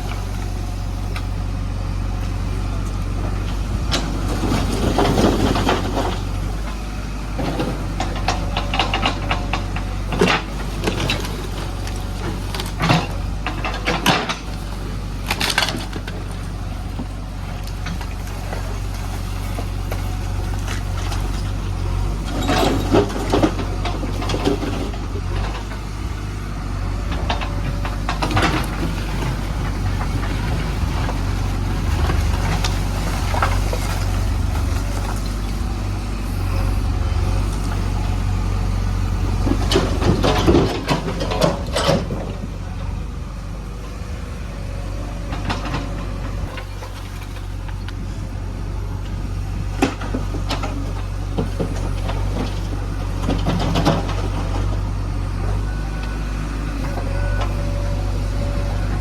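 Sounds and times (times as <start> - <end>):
diesel engine running: 0.0 - 59.0
clanks and rattles: 7.4 - 26.0, 27.0 - 35.8, 39.2 - 42.9, 49.6 - 54.9.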